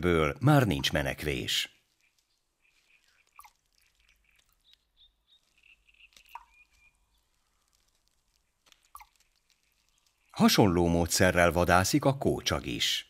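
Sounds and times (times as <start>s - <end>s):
faint outdoor ambience: 0.0s - 13.0s
soft bird chirps: 0.6s - 10.6s
small clicks: 1.9s - 10.4s.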